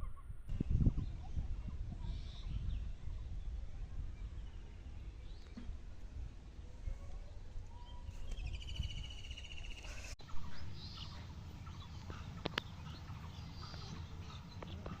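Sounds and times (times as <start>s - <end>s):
low outdoor rumble: 0.0s - 15.0s
bird chirps: 7.7s - 15.0s.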